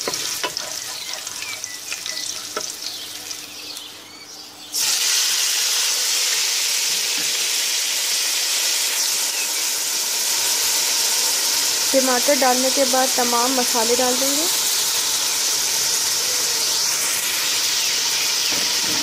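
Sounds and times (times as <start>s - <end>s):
wooden spoon scraping and clicking: 0.0s - 2.7s
loud sizzle of tomatoes: 0.0s - 3.9s, 4.8s - 19.0s
seeds and garlic sizzling in oil: 0.0s - 4.2s, 4.8s - 19.0s.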